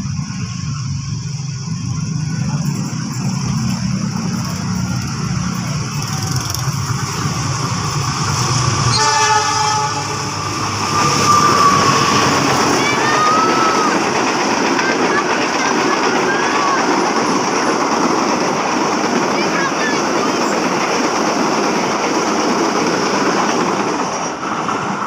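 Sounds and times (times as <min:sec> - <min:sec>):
diesel train rumbling: 0:00.0 - 0:25.0
train horn blast: 0:08.9 - 0:11.9
high squeals: 0:10.1 - 0:16.9.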